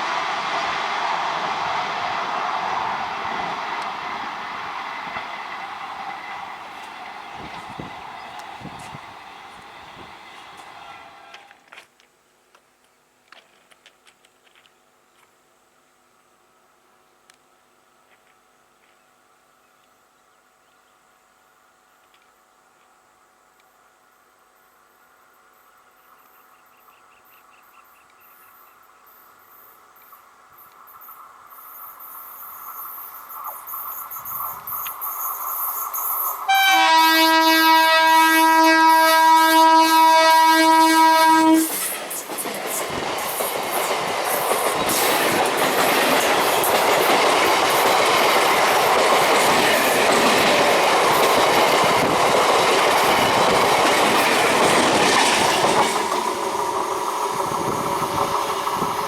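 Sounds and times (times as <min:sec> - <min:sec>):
train approaching: 0:00.0 - 0:11.8, 0:14.6 - 0:59.0
locomotive horn blast: 0:36.5 - 0:41.7
wheels clattering on rails: 0:41.6 - 0:59.0.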